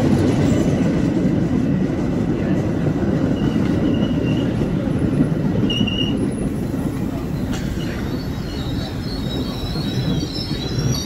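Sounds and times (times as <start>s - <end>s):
train wheels rumbling on rails: 0.0s - 11.0s
high wheel squeals: 5.6s - 6.4s, 7.4s - 11.0s.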